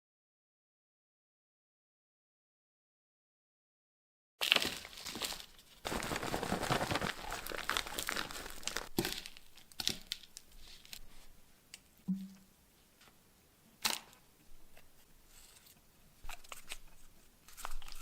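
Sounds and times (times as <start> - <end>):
rustling and crinkling handling: 4.4 - 11.4, 16.2 - 18.0.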